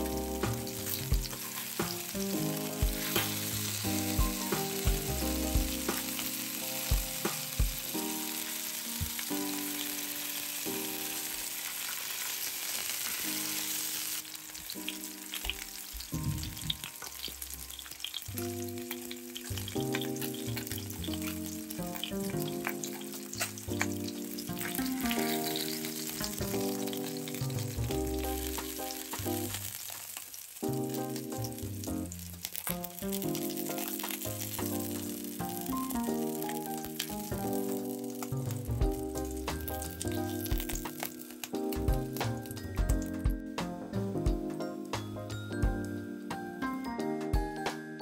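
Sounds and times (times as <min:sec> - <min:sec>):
background music with bass line: 0:00.0 - 0:08.1, 0:16.0 - 0:17.7, 0:19.5 - 0:22.8, 0:26.2 - 0:29.6, 0:37.1 - 0:40.9, 0:41.6 - 0:46.5
food sizzling in hot oil: 0:00.0 - 0:44.1.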